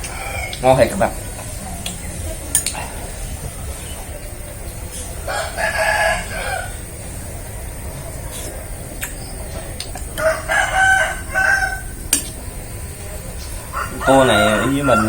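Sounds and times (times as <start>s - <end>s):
rooster crowing: 0.0s - 0.6s, 5.2s - 7.0s, 10.1s - 12.1s, 13.4s - 15.0s.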